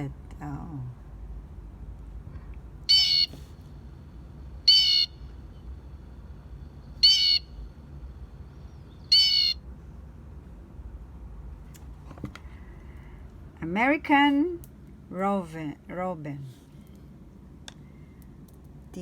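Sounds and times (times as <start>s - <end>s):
blue jay calling: 2.9s - 3.3s, 4.7s - 5.3s, 6.9s - 7.6s, 8.5s - 9.6s.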